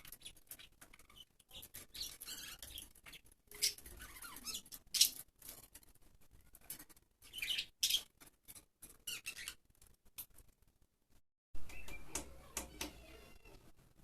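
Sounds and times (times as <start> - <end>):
budgerigars chirping and squawking: 0.1 - 5.2, 7.2 - 8.1, 9.0 - 9.6.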